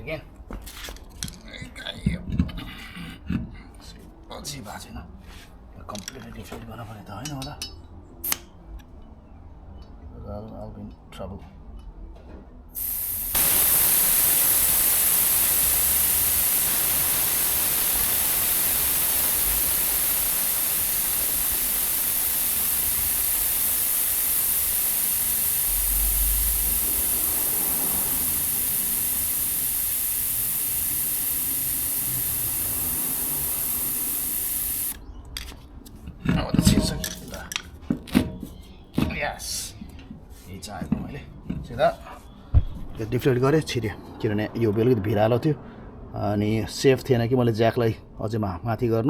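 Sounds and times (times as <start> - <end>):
air hissing out of tyre valve: 8.2 - 8.4, 12.8 - 35.0.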